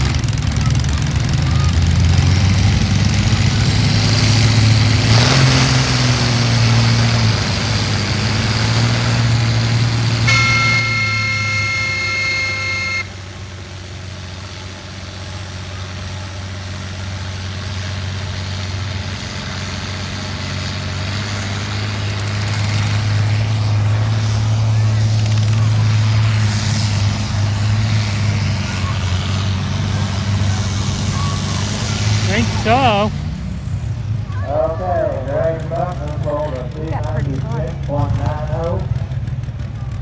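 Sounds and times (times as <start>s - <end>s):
tractor engine running loud: 0.0s - 40.0s
horn sounding: 10.0s - 13.2s, 32.2s - 33.1s.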